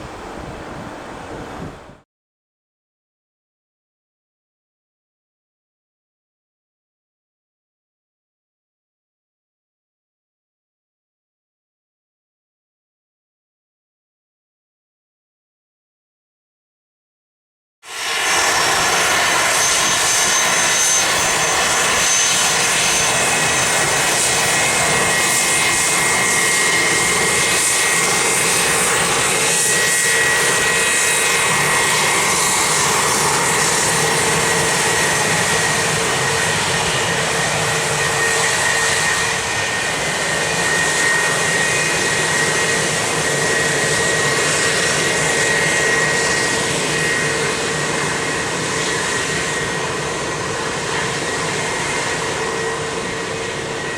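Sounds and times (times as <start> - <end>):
jet engines running: 17.9 - 53.9.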